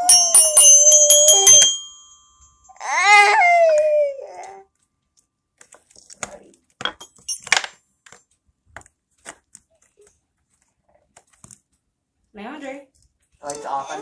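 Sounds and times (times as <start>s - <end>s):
small hard objects clinking: 5.7s - 7.8s.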